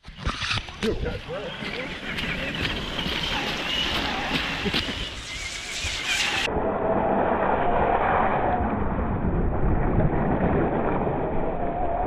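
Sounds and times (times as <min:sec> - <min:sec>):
tyres on dirt and rocks: 0:00.0 - 0:06.5.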